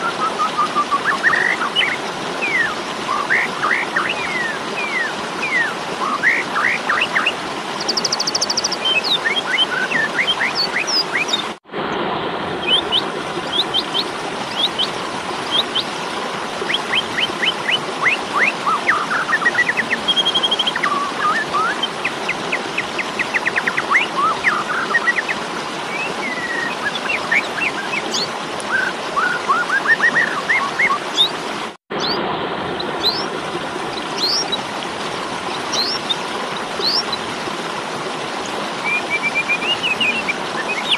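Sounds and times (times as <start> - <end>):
starling harsh chirps and whistles: 0.0 - 11.4, 35.7 - 36.1.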